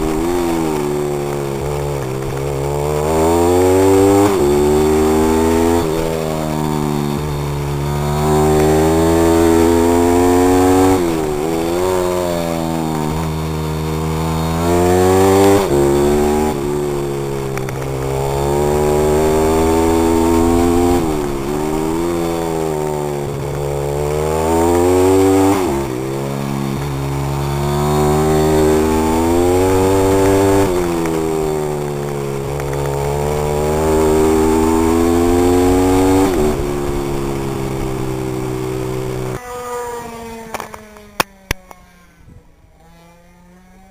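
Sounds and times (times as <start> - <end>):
pit bike engine revving: 0.0 - 43.9.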